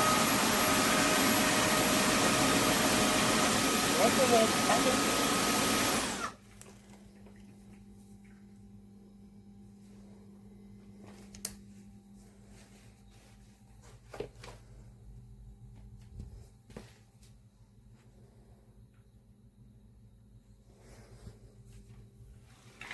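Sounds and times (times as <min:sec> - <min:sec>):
vacuum motor running: 0:00.0 - 0:06.4
voice prompt: 0:03.9 - 0:05.1
faint steady hum: 0:06.4 - 0:22.9.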